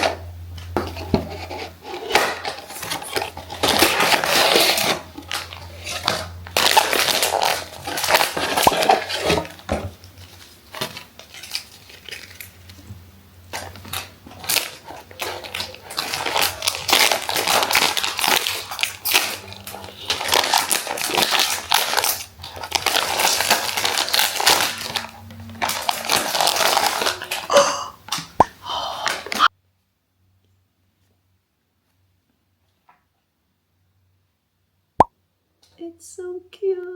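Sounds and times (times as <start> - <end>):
packaging crinkling: 0.8 - 12.9, 13.5 - 28.4.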